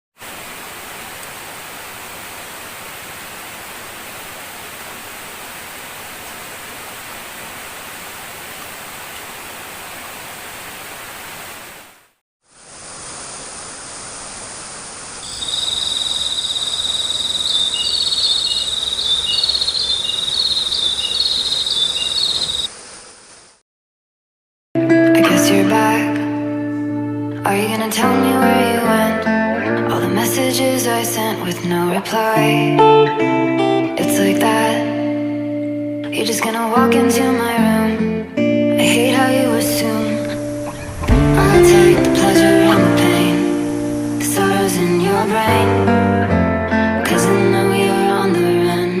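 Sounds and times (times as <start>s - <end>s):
high insect drone: 12.8s - 23.6s, 40.2s - 45.4s
waterfall rushing: 39.6s - 45.8s.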